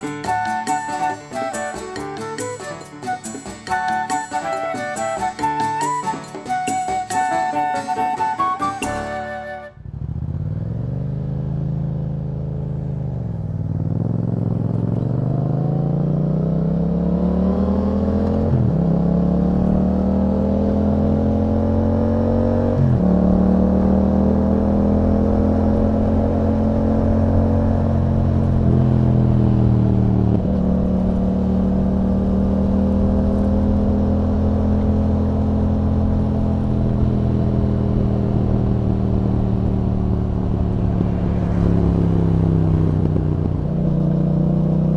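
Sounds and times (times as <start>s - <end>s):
motorcycle engine accelerating: 9.4s - 44.9s.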